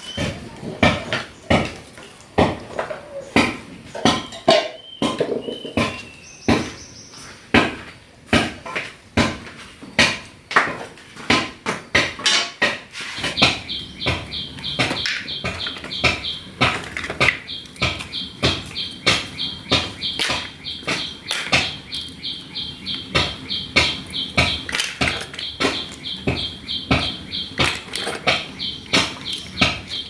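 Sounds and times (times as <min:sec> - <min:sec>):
bird chirping: 0:00.0 - 0:01.8, 0:02.8 - 0:07.6, 0:13.1 - 0:30.0
hard objects knocking: 0:00.0 - 0:06.9, 0:07.5 - 0:30.0.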